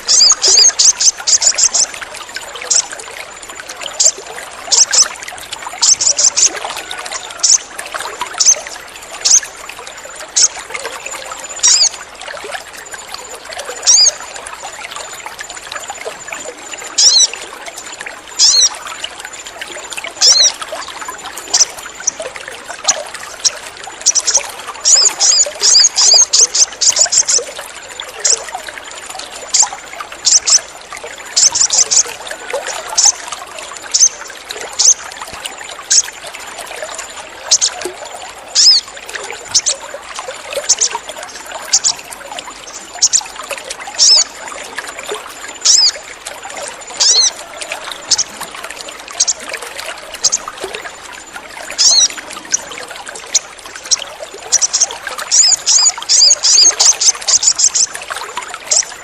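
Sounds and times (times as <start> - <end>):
bird chirping: 0.0 - 1.9, 20.2 - 20.5, 24.1 - 27.4, 33.9 - 34.2, 38.6 - 38.8, 44.0 - 44.3, 47.0 - 47.4, 54.6 - 57.9
water trickling: 0.0 - 59.0.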